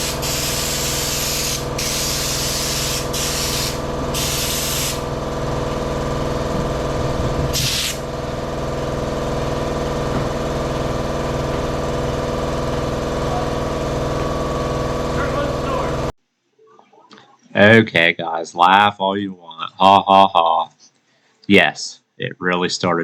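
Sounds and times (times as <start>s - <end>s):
spray gun hissing: 0.0s - 5.1s, 7.5s - 8.1s
machine humming: 0.0s - 16.1s.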